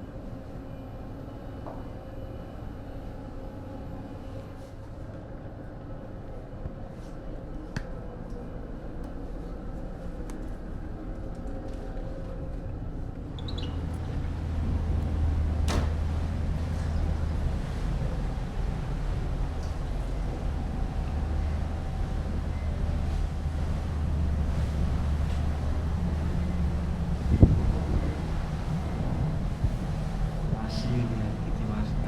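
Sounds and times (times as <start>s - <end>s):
ferry engines droning: 7.5s - 32.0s
deep rumble: 7.9s - 32.0s.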